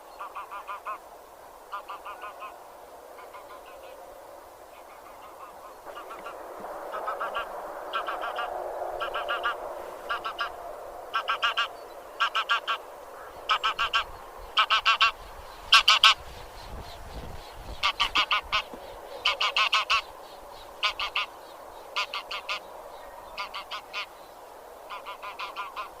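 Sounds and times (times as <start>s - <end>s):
geese honking: 0.2s - 1.0s, 1.7s - 2.6s, 4.8s - 16.2s, 17.7s - 20.1s, 20.8s - 21.4s, 22.0s - 24.1s, 24.9s - 26.0s.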